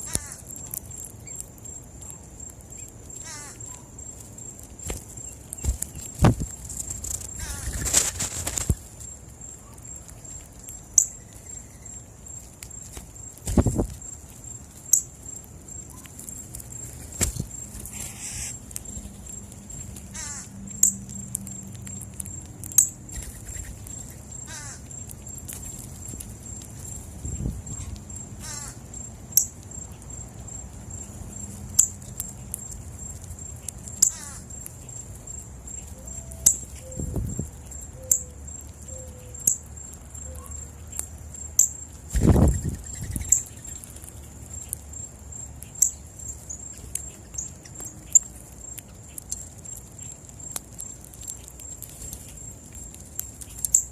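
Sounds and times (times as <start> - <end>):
bird clicks and calls: 0.0 - 8.8, 9.6 - 15.2, 15.8 - 53.9
fluttering bird calls: 3.2 - 3.9, 4.8 - 8.9, 16.8 - 20.6, 23.1 - 26.1, 41.6 - 43.9.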